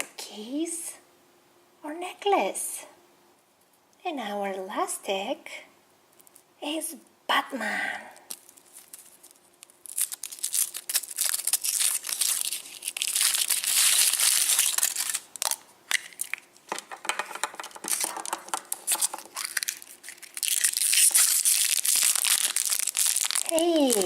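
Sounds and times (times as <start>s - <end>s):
foil wrapper crinkling and tearing: 8.2s - 24.0s.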